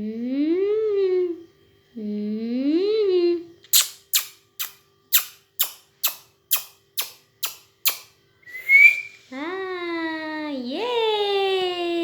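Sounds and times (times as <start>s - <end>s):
short high whistle: 7.9s - 9.2s.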